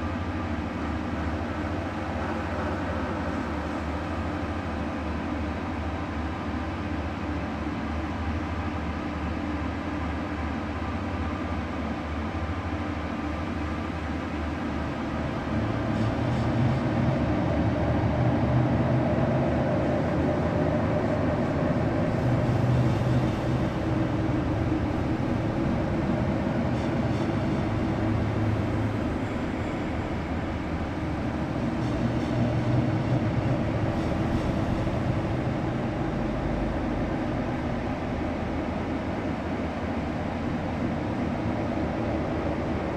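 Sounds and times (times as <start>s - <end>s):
vehicle engine drone: 13.9s - 42.9s.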